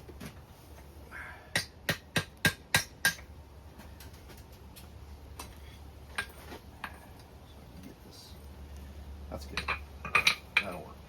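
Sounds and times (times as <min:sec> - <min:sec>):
hammer striking metal on anvil: 0:01.5 - 0:03.3.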